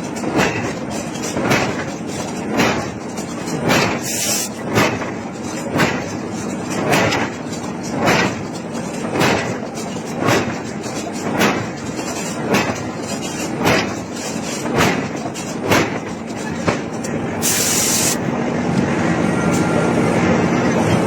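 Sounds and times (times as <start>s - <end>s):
steady mechanical drone: 0.0s - 21.0s
short hiss: 17.4s - 18.2s.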